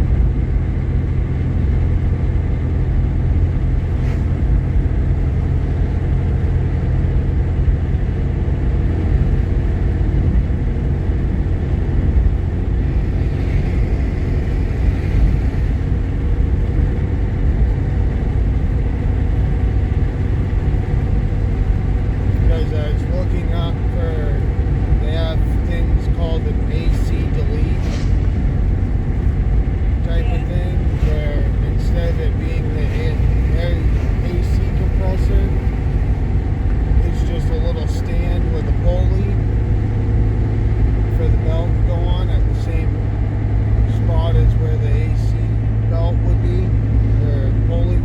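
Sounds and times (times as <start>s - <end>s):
road and engine rumble in car: 0.0s - 48.0s
brief hiss: 27.8s - 28.4s.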